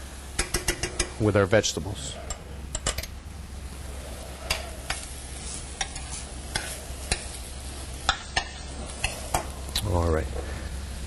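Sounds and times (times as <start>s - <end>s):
vegetables sizzling in a saucepan: 3.4s - 9.9s.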